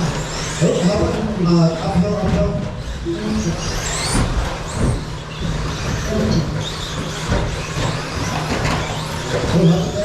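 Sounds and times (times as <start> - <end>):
electric motors whining: 0.0 - 10.0.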